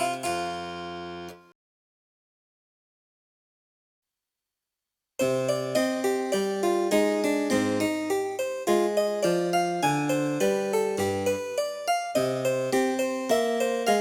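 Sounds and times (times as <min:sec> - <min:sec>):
harpsichord piece: 0:00.0 - 0:01.4, 0:05.2 - 0:14.0.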